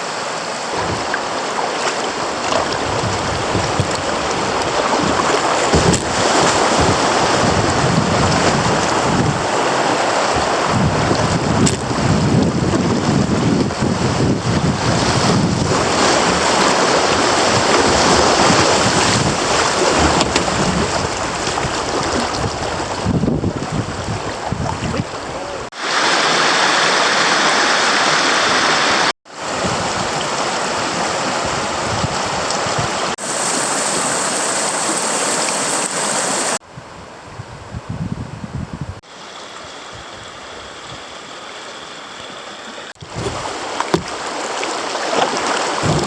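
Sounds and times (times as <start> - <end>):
creek water running: 0.0 - 37.4, 39.0 - 46.0
wind buffeting microphone: 2.2 - 25.7, 29.6 - 33.2, 36.6 - 39.0, 43.0 - 44.2, 45.8 - 46.0.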